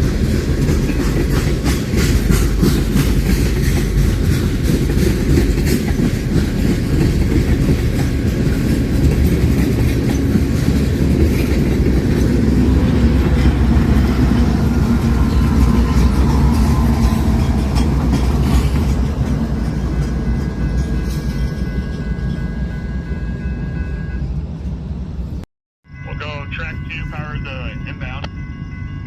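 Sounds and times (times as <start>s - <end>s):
wheels clicking over rail joints: 0.0s - 22.6s
train wheels rumbling on rails: 0.0s - 29.0s.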